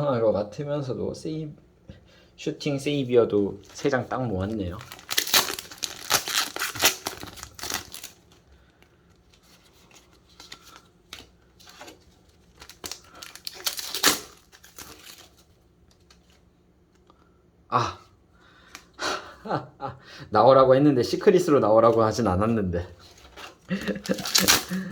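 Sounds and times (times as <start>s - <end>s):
foil pack crinkling and tearing: 3.6s - 8.3s, 9.8s - 15.5s, 23.3s - 24.9s
cards rustling and tapping: 23.1s - 24.9s.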